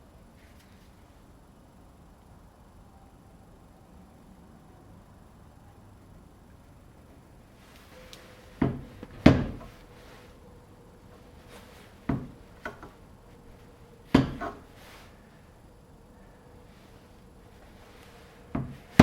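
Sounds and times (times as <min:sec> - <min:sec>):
faint steady hum: 0:00.0 - 0:19.0
sharp wooden knocks: 0:08.6 - 0:09.7, 0:12.1 - 0:12.9, 0:14.1 - 0:14.6.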